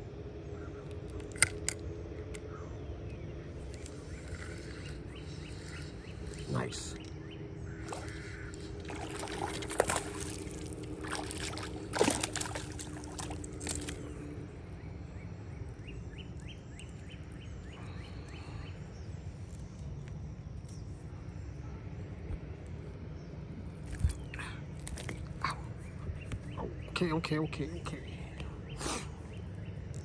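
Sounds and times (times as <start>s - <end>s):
fish splashing and thrashing: 7.7s - 14.4s, 23.8s - 25.4s
water sloshing: 7.7s - 14.4s, 23.8s - 25.6s.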